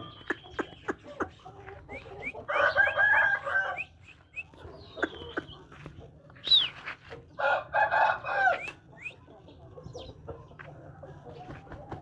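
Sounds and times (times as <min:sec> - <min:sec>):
rooster crowing: 0:02.5 - 0:04.0, 0:07.4 - 0:08.7.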